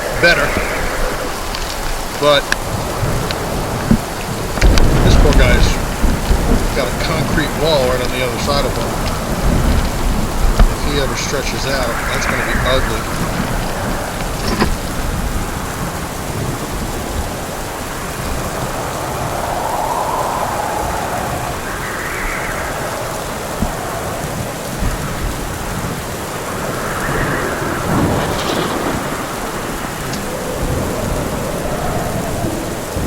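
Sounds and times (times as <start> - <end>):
heavy rain pouring: 0.0 - 33.0
thunder rumbling: 0.0 - 33.0.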